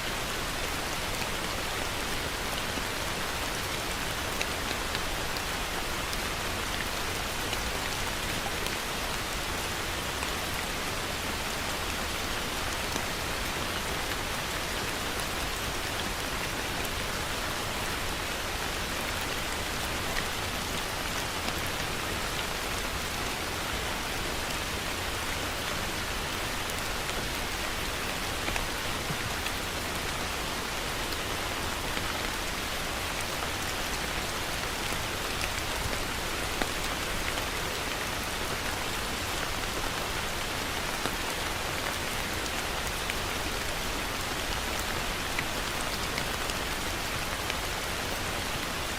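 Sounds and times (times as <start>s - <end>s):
heavy rain falling: 0.0s - 48.9s.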